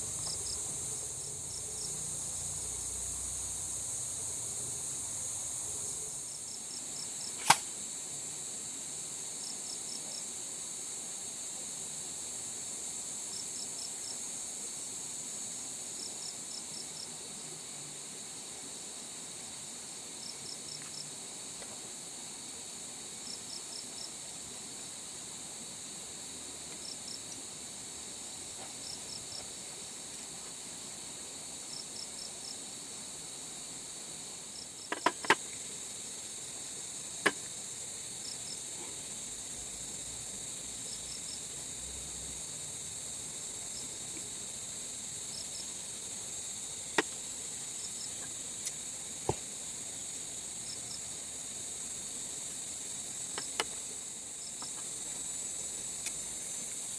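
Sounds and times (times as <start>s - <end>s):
cricket chirping: 0.0s - 56.9s
high-pitched insect chorus: 0.0s - 56.9s
sharp clicks or knocks: 7.4s - 7.7s.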